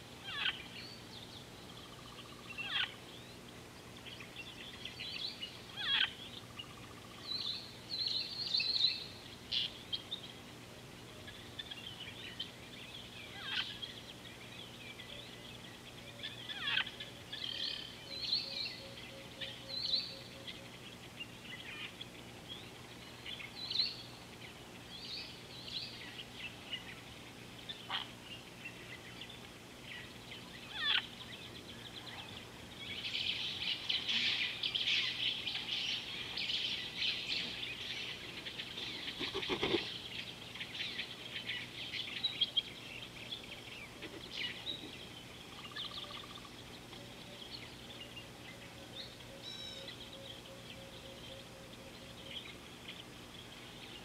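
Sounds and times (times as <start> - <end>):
birds chirping and calling: 0.2 - 54.0.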